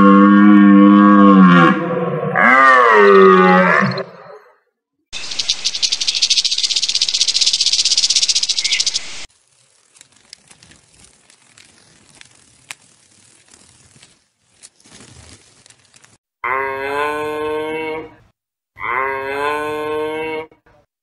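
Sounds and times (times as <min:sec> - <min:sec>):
rattlesnake rattling: 0:05.2 - 0:15.9.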